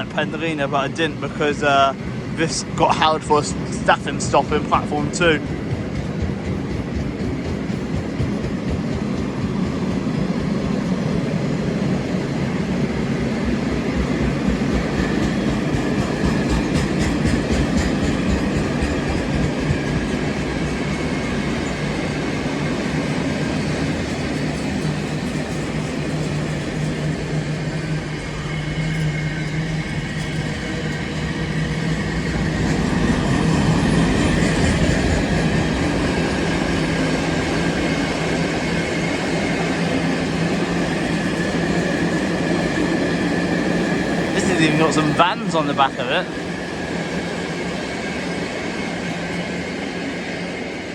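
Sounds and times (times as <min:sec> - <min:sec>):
train wheels on rails: 0:00.0 - 0:50.9.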